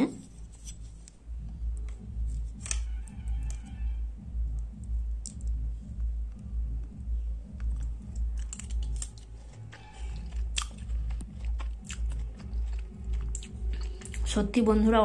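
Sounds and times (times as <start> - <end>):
background music with low beat: 0.1 - 15.0
person chewing with wet clicks: 5.2 - 5.6, 6.3 - 14.4.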